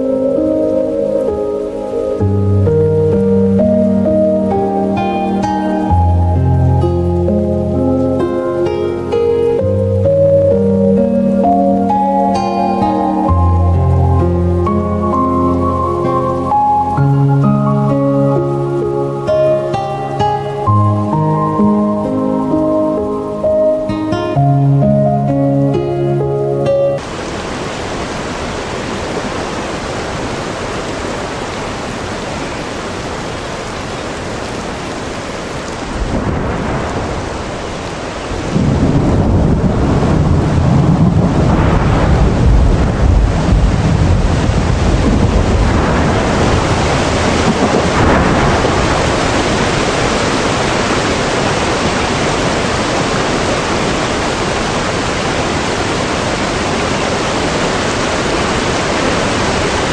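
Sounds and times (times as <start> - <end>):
steady rain: 0.0 - 59.9
thunder rumbling: 35.7 - 57.0.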